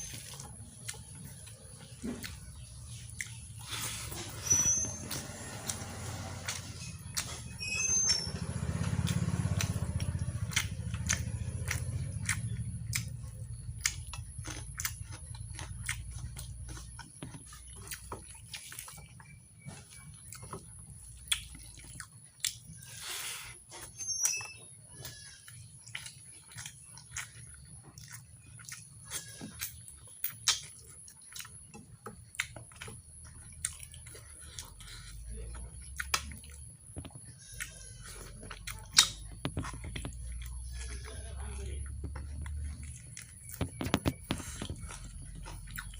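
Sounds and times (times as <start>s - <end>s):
wet chewing and mouth smacks: 0.0s - 45.9s
sharp mouth clicks: 29.6s - 30.8s, 37.5s - 40.5s.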